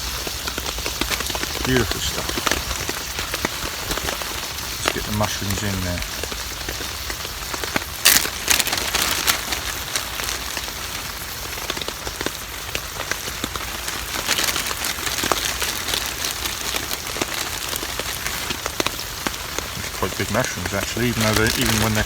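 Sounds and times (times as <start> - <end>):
heavy rain on a tarp: 0.0 - 22.0.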